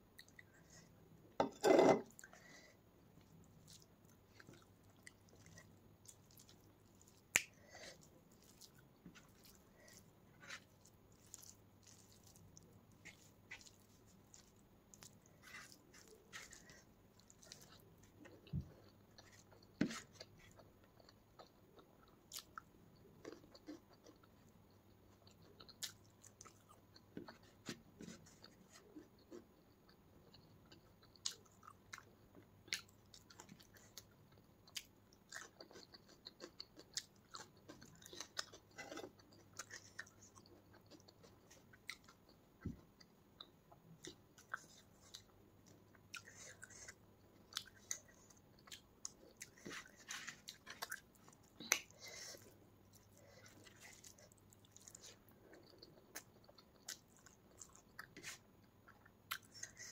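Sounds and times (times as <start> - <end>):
metal bowl clattering: 1.4 - 2.0
wet chewing with mouth clicks: 3.2 - 59.9
fingers squishing rice: 3.6 - 20.6.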